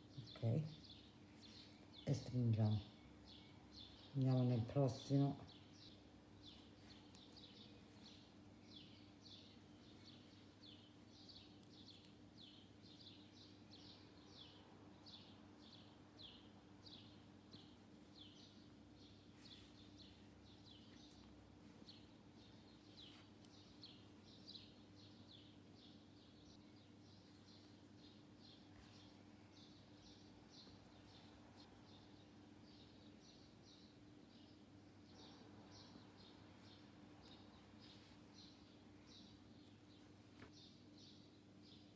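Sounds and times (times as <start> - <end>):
faint bird chirping: 0.0 - 41.9.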